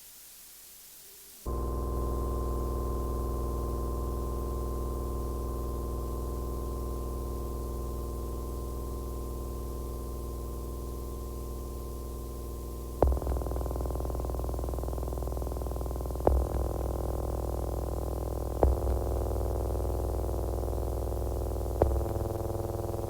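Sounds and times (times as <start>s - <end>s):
electronic noise drone: 10.5s - 23.0s.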